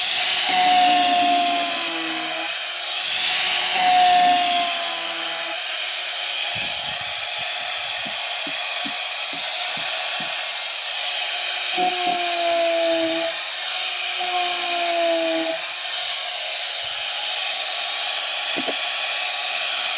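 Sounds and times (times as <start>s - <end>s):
angle grinder sanding wood: 0.0s - 19.9s
faint tone sliding down in pitch: 0.3s - 2.6s, 3.4s - 5.6s, 11.8s - 13.4s.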